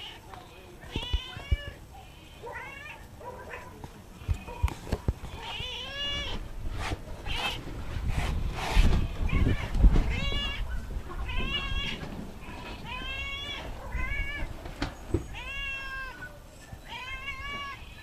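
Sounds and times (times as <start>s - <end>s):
cat meowing: 0.9s - 3.1s, 5.4s - 6.4s, 8.9s - 14.6s, 15.2s - 18.0s.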